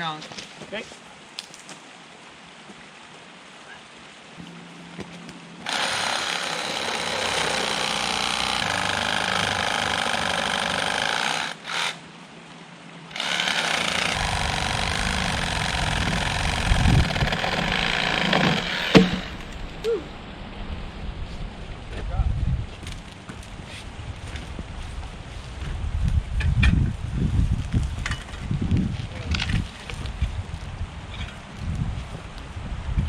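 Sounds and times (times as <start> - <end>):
reciprocating saw cutting wood: 5.6 - 12.0, 13.1 - 19.6.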